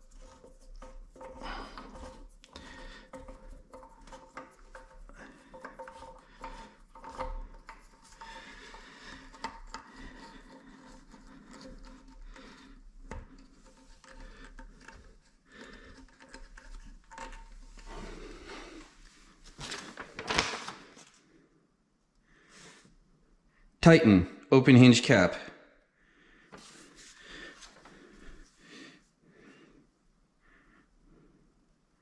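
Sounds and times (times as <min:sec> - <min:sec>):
scraping rubbing and clicking parts: 0:00.0 - 0:20.4.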